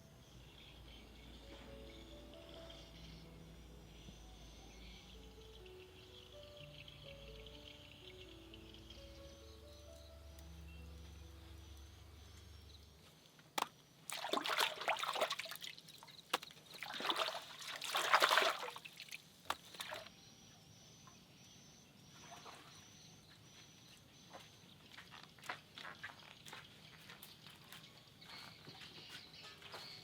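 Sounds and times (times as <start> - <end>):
sharp drips and clicks: 13.6 - 20.1
water sloshing and trickling: 13.6 - 20.1.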